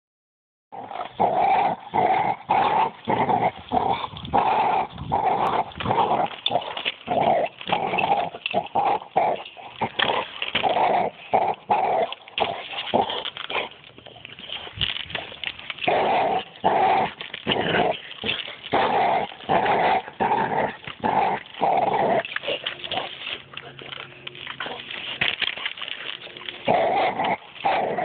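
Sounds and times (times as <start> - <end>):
dog barking and growling: 0.7 - 13.8, 15.8 - 28.0.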